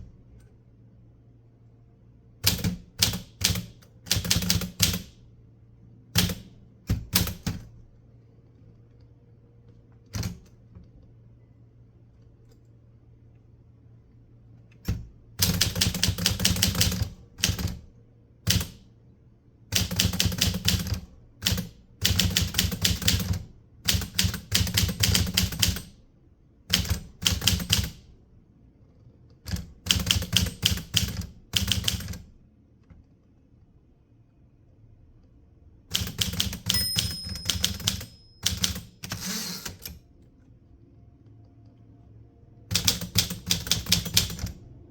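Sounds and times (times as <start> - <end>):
typewriter key strikes: 26.7 - 28.0, 29.5 - 32.2, 35.9 - 40.0, 42.7 - 44.6.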